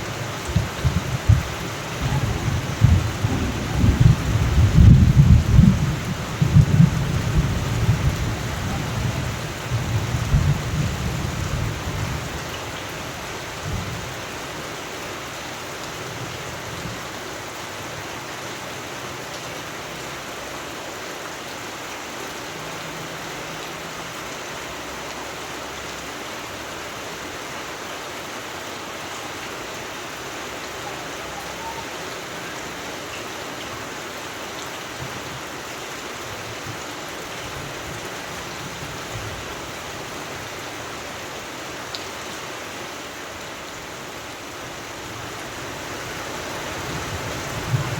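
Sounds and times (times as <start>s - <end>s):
low rumble of thunder: 0.0s - 12.4s, 46.8s - 47.9s
steady rain: 0.0s - 47.9s.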